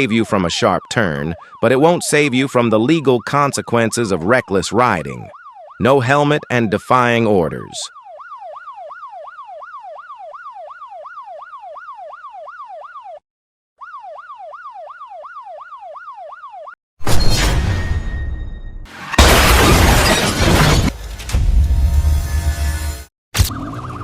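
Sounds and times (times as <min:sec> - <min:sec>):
police siren yelping: 0:00.0 - 0:13.2, 0:13.8 - 0:16.8
loud crash-like bang: 0:17.0 - 0:22.0.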